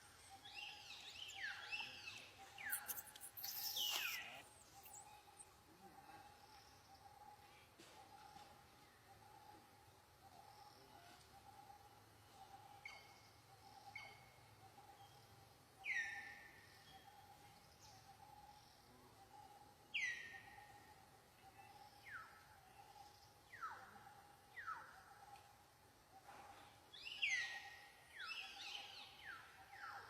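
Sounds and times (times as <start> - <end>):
short downward-sliding calls: 2.6 - 4.4.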